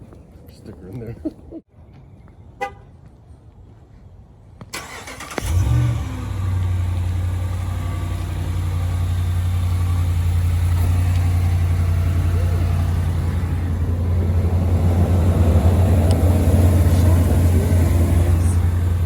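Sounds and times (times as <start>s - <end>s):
truck engine starting and idling: 4.7s - 19.0s.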